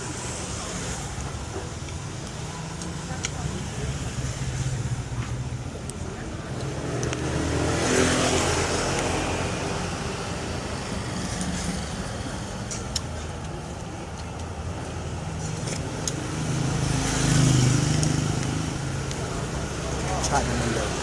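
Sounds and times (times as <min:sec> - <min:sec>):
motor traffic passing: 0:00.0 - 0:21.0
sharp clicks: 0:05.8 - 0:07.3.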